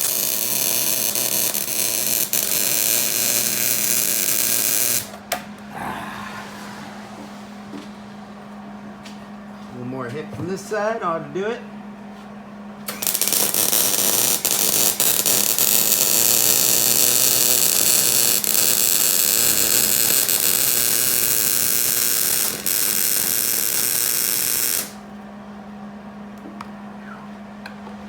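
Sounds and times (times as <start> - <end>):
welder arc crackling: 0.0 - 5.2, 12.9 - 25.0
low hum: 5.5 - 9.6.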